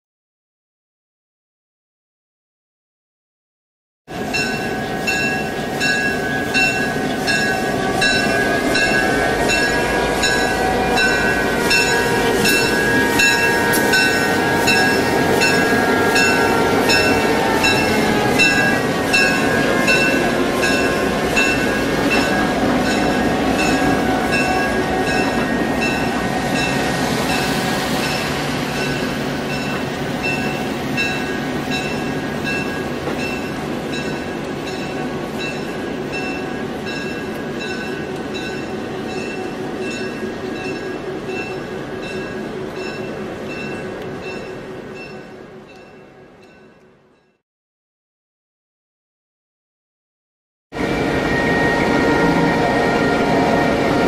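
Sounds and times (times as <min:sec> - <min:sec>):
diesel locomotive engine rumbling: 0:04.1 - 0:47.3, 0:50.7 - 0:54.0
train wheels rolling on rails: 0:04.1 - 0:47.3.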